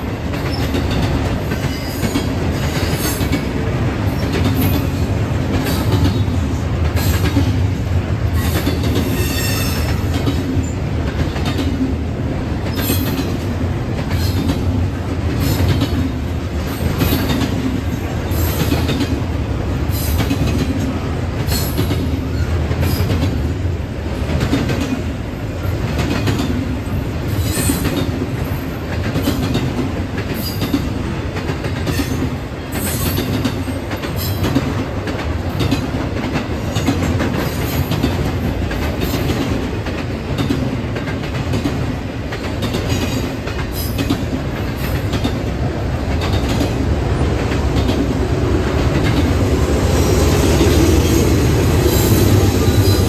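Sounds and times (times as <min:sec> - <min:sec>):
railroad cars rumbling: 0:00.0 - 0:53.0
wheels clicking over rail joints: 0:00.1 - 0:23.5, 0:24.1 - 0:49.4.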